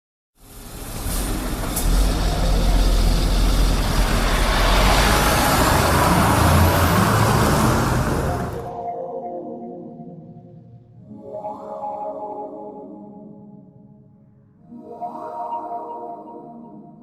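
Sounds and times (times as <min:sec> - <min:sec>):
bus engine low rumble: 0:00.4 - 0:08.7.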